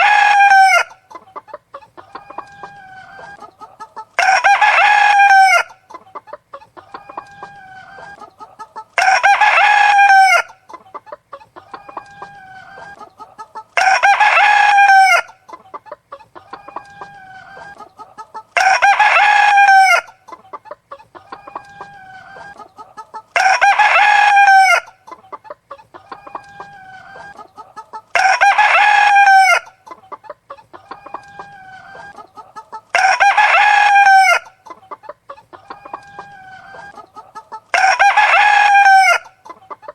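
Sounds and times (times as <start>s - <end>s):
rooster crowing: 0.0s - 1.0s, 4.2s - 5.8s, 9.0s - 10.6s, 13.8s - 15.4s, 18.6s - 20.2s, 23.4s - 25.0s, 28.1s - 29.7s, 32.9s - 34.5s, 37.7s - 39.4s
chickens clucking: 0.0s - 39.9s.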